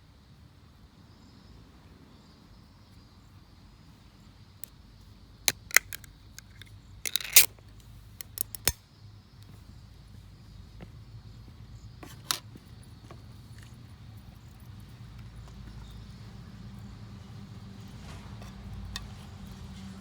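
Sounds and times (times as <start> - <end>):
objects clicking and clinking: 5.5 - 7.5, 8.2 - 8.7.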